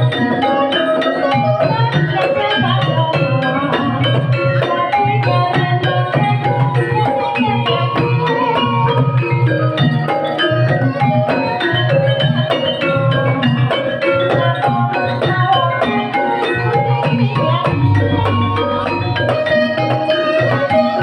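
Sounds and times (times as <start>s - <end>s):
mallet-struck pitched percussion: 0.0s - 21.0s
repeating drum pattern: 11.8s - 21.0s.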